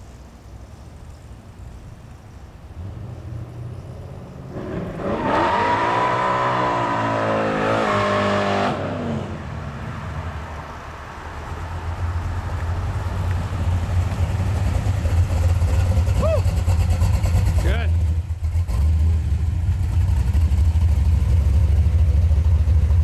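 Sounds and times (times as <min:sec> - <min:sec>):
car engine revving: 0:02.8 - 0:10.5, 0:11.7 - 0:23.0
low exhaust rumble: 0:11.4 - 0:23.0.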